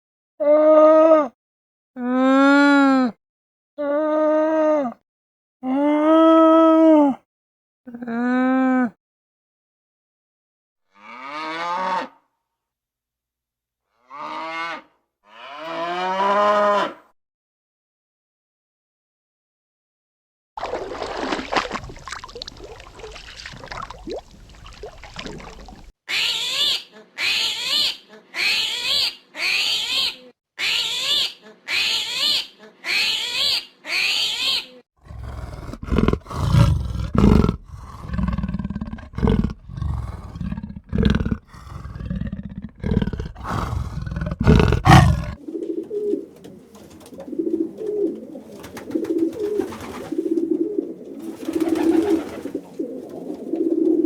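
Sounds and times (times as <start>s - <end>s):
big cat roaring: 35.0s - 45.4s
pigeon cooing: 35.1s - 54.0s
short repeated animal calls: 42.8s - 45.4s.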